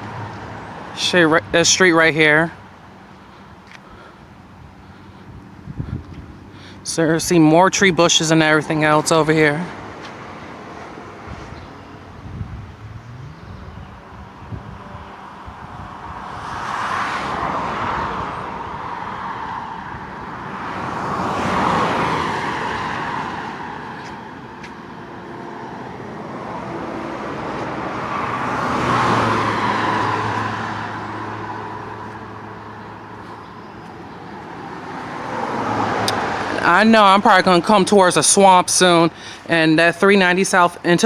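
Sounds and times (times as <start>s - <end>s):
cars passing by: 0.0s - 41.0s.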